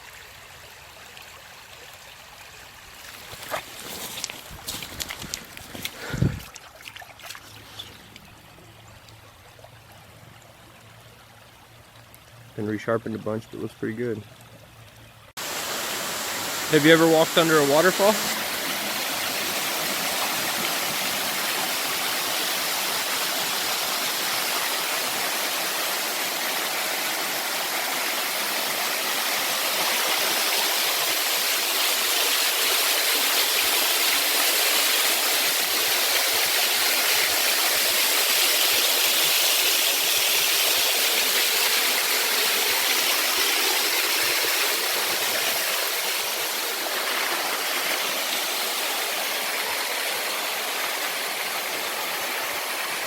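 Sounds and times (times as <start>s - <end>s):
waterfall splashing: 15.4s - 53.0s.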